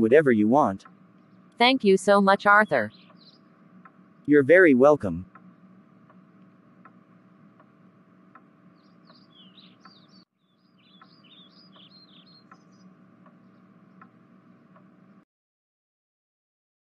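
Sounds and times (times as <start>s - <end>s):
small birds chirping: 0.0s - 14.9s
low steady hum: 0.0s - 15.2s
soft ticks: 3.8s - 4.0s, 5.3s - 7.0s, 11.0s - 11.2s, 11.8s - 14.9s.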